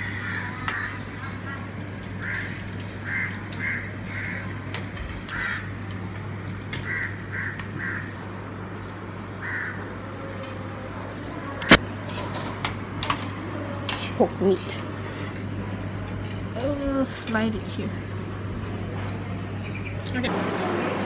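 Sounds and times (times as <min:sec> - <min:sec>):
bird calling: 0:06.8 - 0:08.4, 0:09.4 - 0:11.8.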